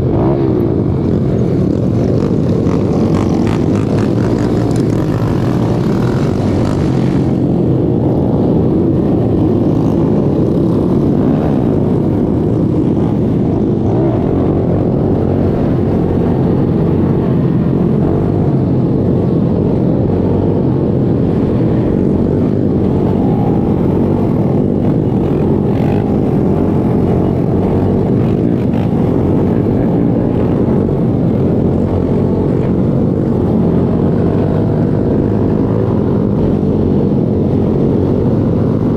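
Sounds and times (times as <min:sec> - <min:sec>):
pit bike engines droning: 0:00.0 - 0:38.9.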